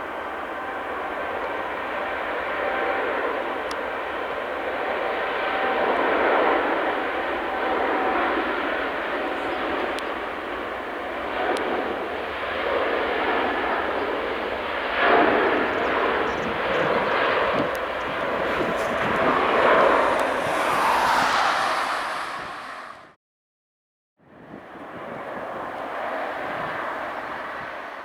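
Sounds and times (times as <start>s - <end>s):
jet engines rushing: 5.8s - 23.2s
high engine whine: 15.0s - 23.2s.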